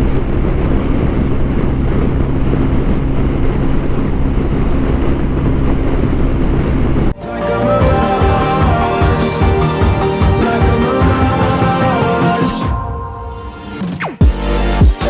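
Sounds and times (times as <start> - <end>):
motorcycle engine running: 0.0 - 7.2
wind and road noise: 0.0 - 7.2.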